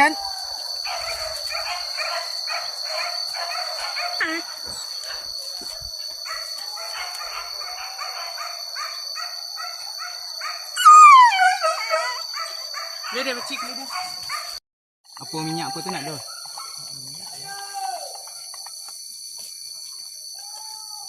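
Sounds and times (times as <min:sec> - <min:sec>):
high drone of insects: 0:00.0 - 0:21.0
dogs barking: 0:00.8 - 0:14.6, 0:16.2 - 0:16.9
dog crying: 0:04.0 - 0:04.6, 0:10.8 - 0:12.5.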